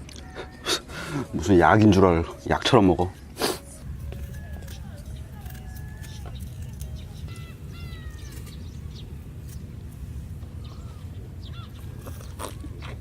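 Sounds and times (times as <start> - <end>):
steady low rumble: 3.8 - 13.0.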